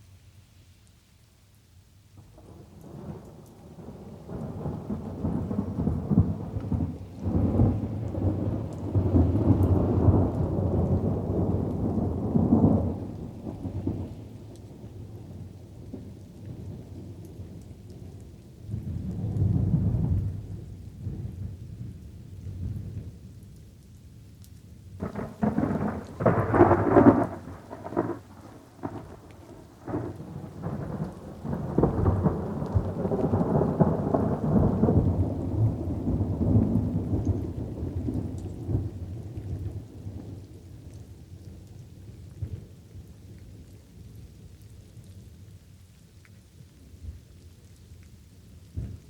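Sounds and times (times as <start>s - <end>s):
soft rain hiss: 0.0s - 49.0s
thunder clap and rumble: 2.4s - 14.1s, 18.6s - 23.2s, 25.0s - 41.4s, 42.1s - 43.1s, 48.7s - 49.0s.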